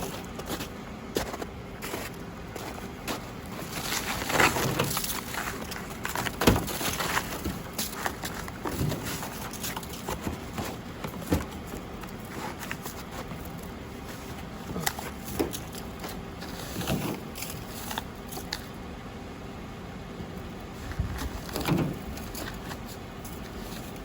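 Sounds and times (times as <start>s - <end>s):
crunching in snow: 0.0s - 18.6s.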